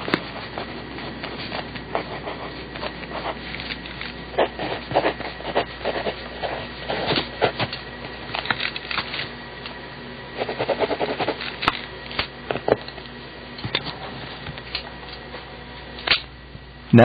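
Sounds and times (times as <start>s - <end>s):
pencil scratching on paper: 0.0s - 7.6s, 10.4s - 11.4s
faint steady hum: 0.0s - 17.0s.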